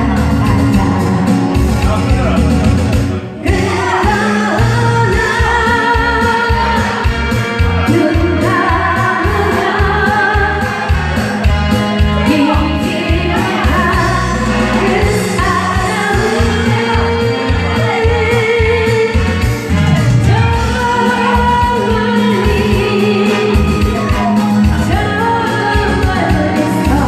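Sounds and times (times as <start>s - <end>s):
music with a steady beat: 0.0s - 27.0s
person singing with vibrato: 3.2s - 27.0s.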